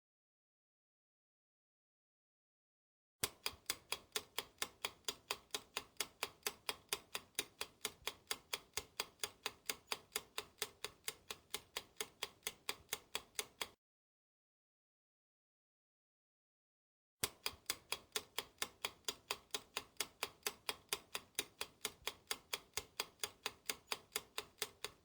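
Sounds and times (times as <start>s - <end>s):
clock ticking: 3.2s - 13.8s, 17.2s - 25.0s.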